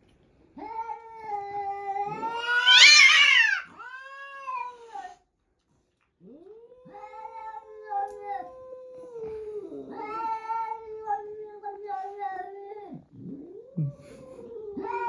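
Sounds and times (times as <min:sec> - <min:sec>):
cat yowling: 0:00.6 - 0:05.2, 0:14.7 - 0:15.0.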